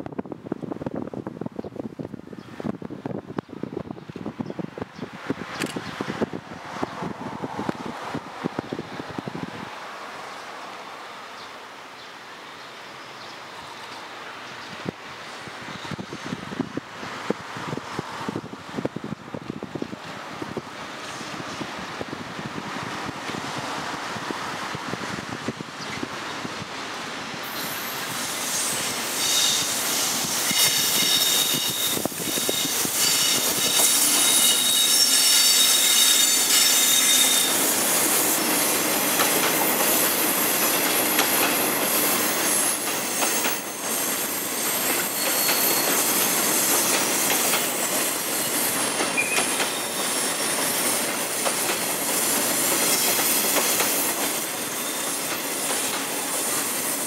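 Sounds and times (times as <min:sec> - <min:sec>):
train wheels rumbling on rail: 0:00.0 - 0:10.5, 0:13.6 - 0:57.0
high wheel squealing: 0:27.5 - 0:57.0.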